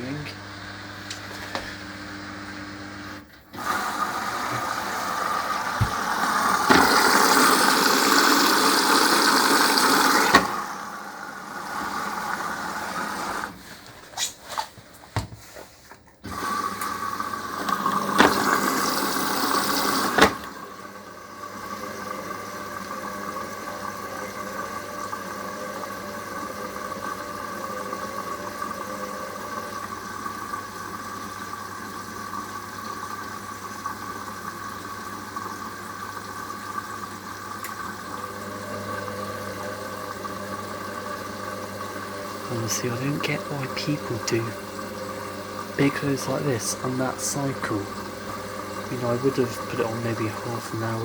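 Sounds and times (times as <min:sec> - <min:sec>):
water rushing in: 0:03.6 - 0:13.7, 0:16.3 - 0:51.0.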